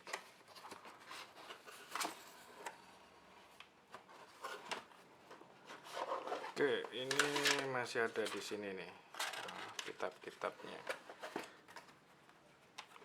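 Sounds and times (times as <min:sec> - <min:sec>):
cardboard packaging rubbing: 0:05.6 - 0:07.7.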